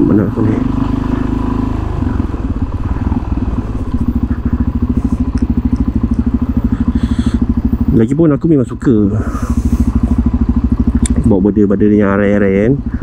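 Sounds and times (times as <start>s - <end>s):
motorcycle engine running at low revs: 0.0s - 13.0s.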